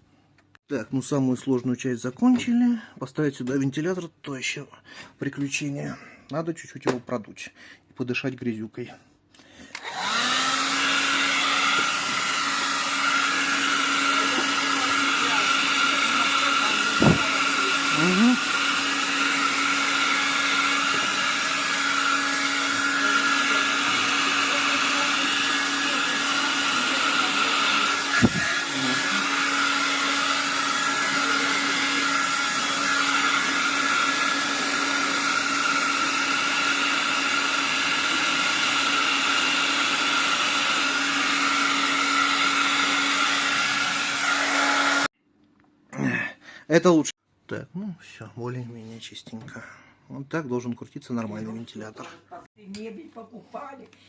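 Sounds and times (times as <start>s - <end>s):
electric air blower running: 9.7s - 45.1s.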